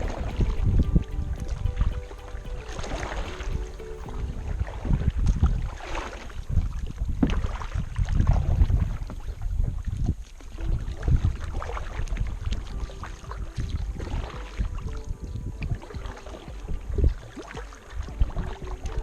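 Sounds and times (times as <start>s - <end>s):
paddle splashing in water: 0.0s - 4.9s, 10.6s - 19.0s
wind rumble on microphone: 0.0s - 19.0s.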